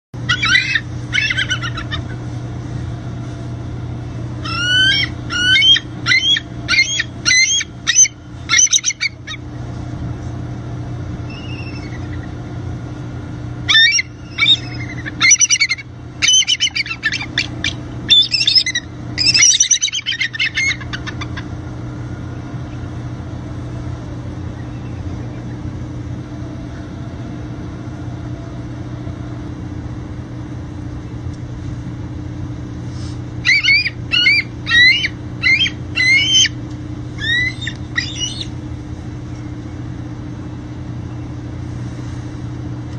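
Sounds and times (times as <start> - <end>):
low hum: 0.2 - 42.9
bird chirping: 11.3 - 12.3, 13.7 - 21.2, 33.5 - 36.5, 37.2 - 38.5.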